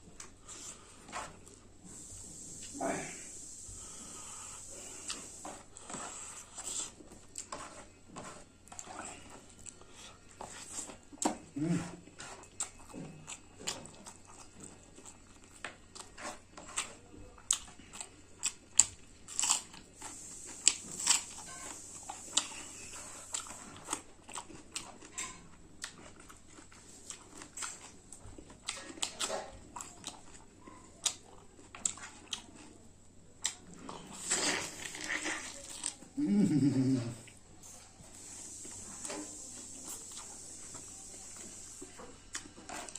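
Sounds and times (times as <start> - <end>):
person chewing food: 0.0 - 32.8, 33.4 - 42.9.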